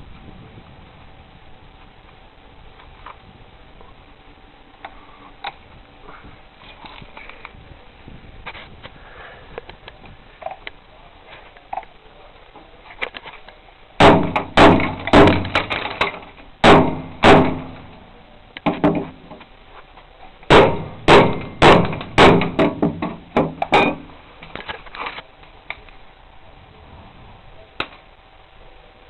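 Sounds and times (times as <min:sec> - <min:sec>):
hammer blows ringing: 0:16.6 - 0:17.9, 0:20.5 - 0:24.0.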